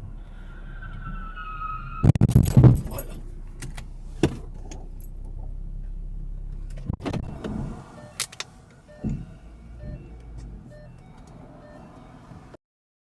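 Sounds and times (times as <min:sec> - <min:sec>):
low car hum: 0:00.0 - 0:12.6
clattering rattling impacts: 0:02.1 - 0:05.5.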